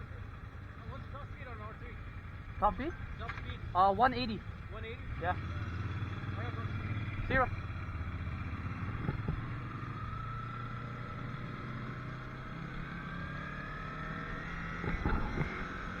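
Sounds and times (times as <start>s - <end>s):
motorcycle engine running: 0.0s - 16.0s
wind noise: 14.8s - 16.0s.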